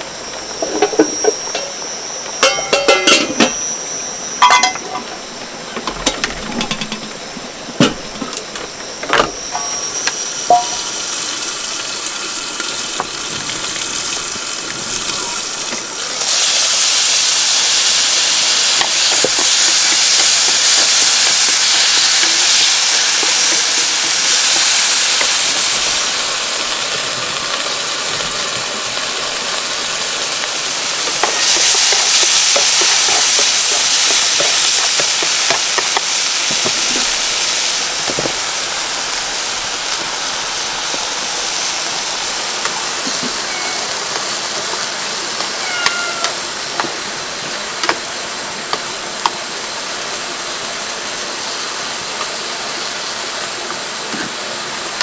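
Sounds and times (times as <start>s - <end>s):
giblets sizzling in a frying pan: 0.0s - 55.0s
low hiss: 0.0s - 55.0s
clinks and knocks: 2.4s - 3.6s, 5.8s - 7.2s.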